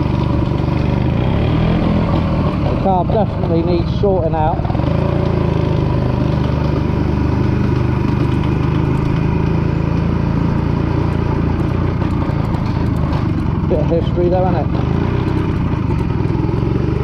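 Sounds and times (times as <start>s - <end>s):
two-stroke motorcycle engine running: 0.0s - 17.0s
person speaking: 2.7s - 4.7s, 13.6s - 14.8s.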